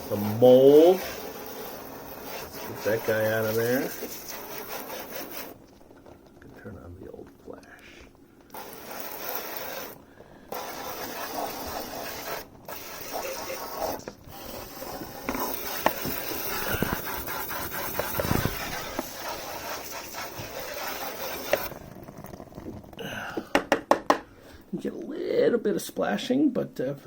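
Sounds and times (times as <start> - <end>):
sprayer hissing: 0.0 - 5.6, 7.8 - 21.7.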